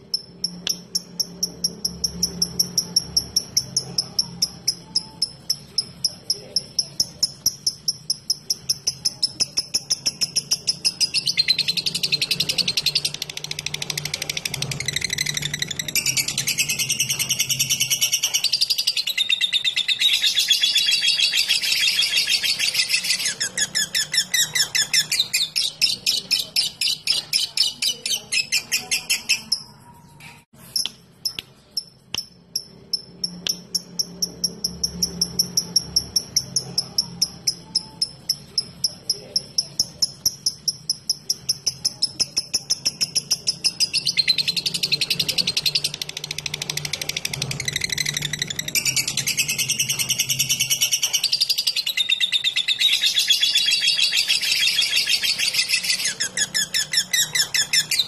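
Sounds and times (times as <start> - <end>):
lovebird chattering and chirping: 0.0 - 58.0.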